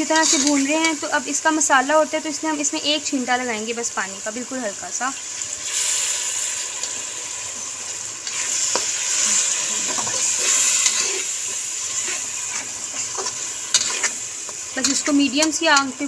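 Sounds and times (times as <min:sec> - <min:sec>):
food sizzling in oil: 0:00.0 - 0:16.0
metal spatula scraping pan: 0:08.2 - 0:15.9.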